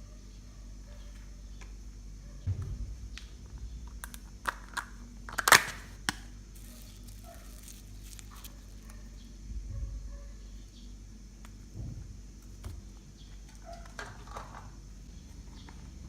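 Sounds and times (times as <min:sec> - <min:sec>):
slime popping and crackling: 0:04.5 - 0:08.9.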